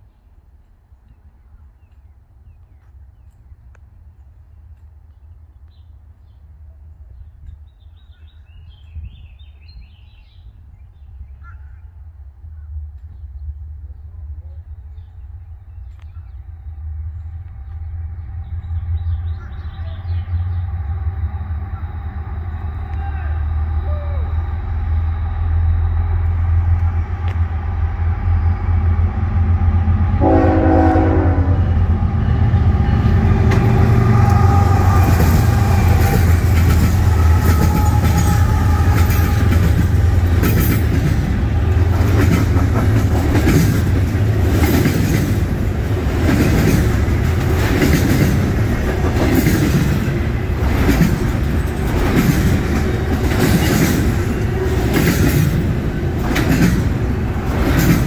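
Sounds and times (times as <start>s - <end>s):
diesel locomotive passing: 0.0s - 58.0s
train air horn blast: 30.1s - 40.4s
wheels clattering over rails: 33.2s - 58.0s.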